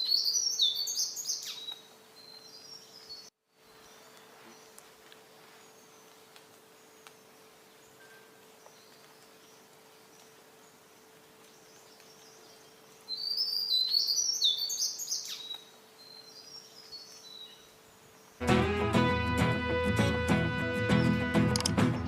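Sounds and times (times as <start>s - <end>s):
songbird twittering: 11.7s - 17.7s.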